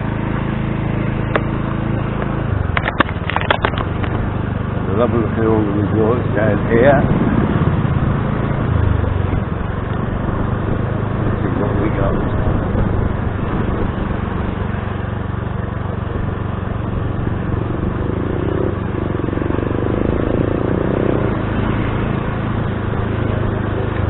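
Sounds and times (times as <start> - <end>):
motor scooter engine running: 0.0 - 24.0
road noise: 0.0 - 24.0.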